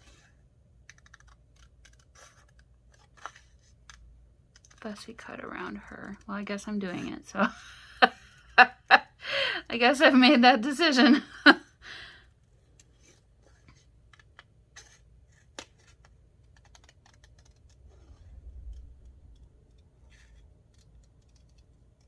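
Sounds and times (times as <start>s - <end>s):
paper handling rumble: 0.0s - 7.2s
scissors snipping paper: 0.8s - 7.0s.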